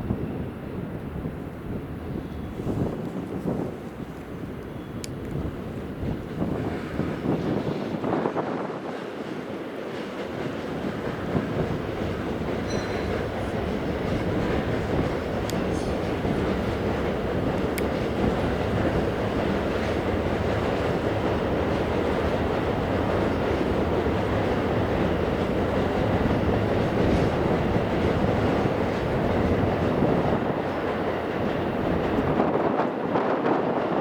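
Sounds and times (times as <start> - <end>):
train rushing past: 0.0 - 34.0.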